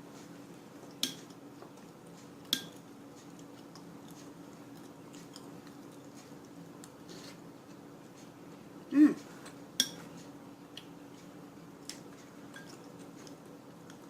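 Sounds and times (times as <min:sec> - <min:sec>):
steady low hum: 0:00.0 - 0:14.0
cutlery clinking against dish: 0:09.8 - 0:10.1, 0:12.5 - 0:12.9.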